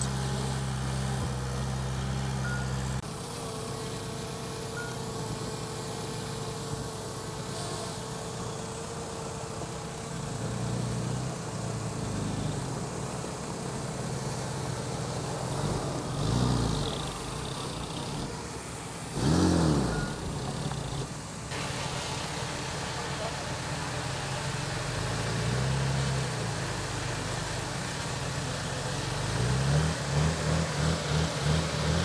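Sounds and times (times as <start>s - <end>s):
heavy machine engine revving: 0.0s - 3.0s, 10.4s - 22.4s, 23.8s - 32.0s.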